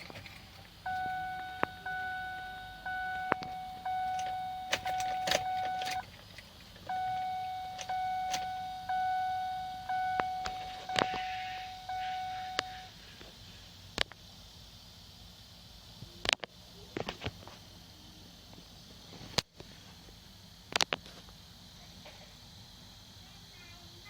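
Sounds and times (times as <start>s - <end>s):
car warning chime: 0.8s - 6.1s, 6.8s - 12.9s
sharp clicks: 3.1s - 6.9s.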